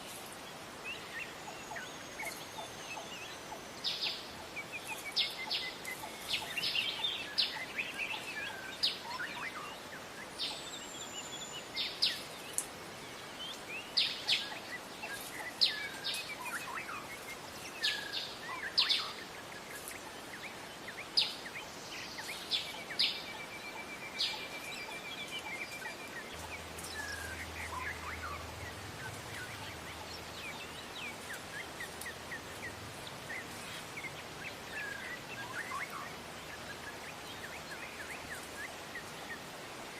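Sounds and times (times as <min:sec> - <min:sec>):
songbirds chirping: 0:00.0 - 0:39.9
bird trill: 0:22.2 - 0:39.4.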